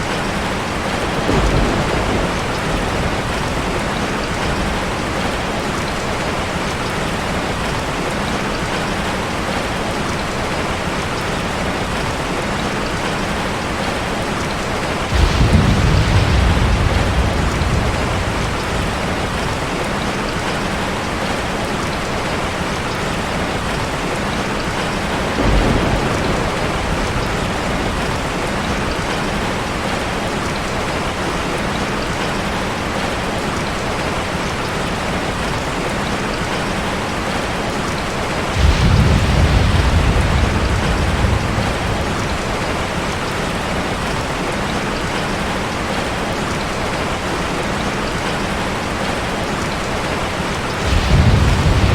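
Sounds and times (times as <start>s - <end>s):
thunder rumble: 0.0s - 8.0s, 14.6s - 20.8s, 23.2s - 30.1s, 37.2s - 44.8s, 49.8s - 51.9s
heavy rain on a car: 0.0s - 51.9s.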